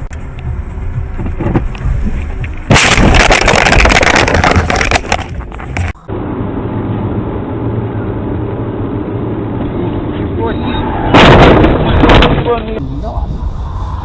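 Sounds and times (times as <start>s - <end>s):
engine and road noise: 0.0s - 14.0s
loud knocks and rattles: 11.2s - 12.5s.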